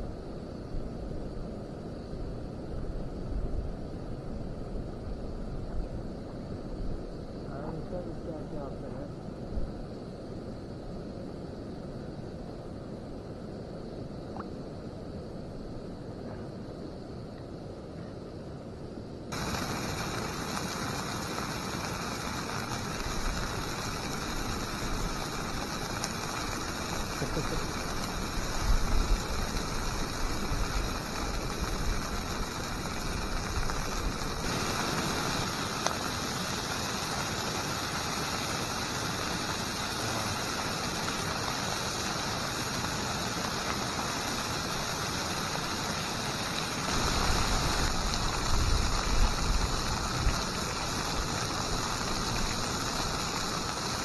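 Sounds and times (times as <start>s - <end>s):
wind rumble on microphone: 0.0s - 10.0s, 46.9s - 52.6s
sausages sizzling in a pan: 19.3s - 54.0s.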